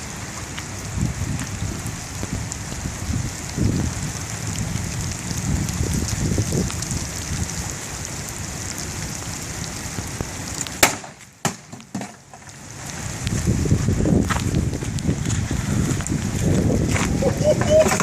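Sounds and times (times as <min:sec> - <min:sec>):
low rumbling: 0:00.0 - 0:10.7, 0:12.5 - 0:18.0
steady rain falling: 0:00.0 - 0:18.0
sharp loud crack: 0:10.8 - 0:11.7.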